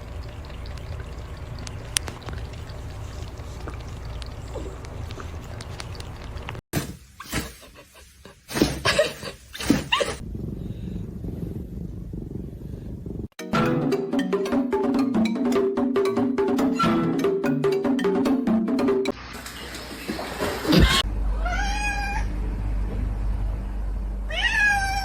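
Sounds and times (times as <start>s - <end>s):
music: 13.4s - 19.2s
cat crying: 21.4s - 22.3s, 24.3s - 25.0s.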